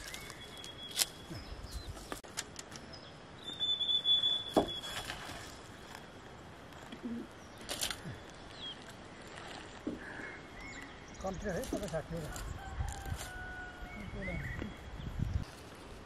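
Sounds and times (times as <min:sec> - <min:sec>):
birds calling: 0:00.0 - 0:02.2, 0:02.8 - 0:15.2
whistled bird note: 0:03.4 - 0:05.1.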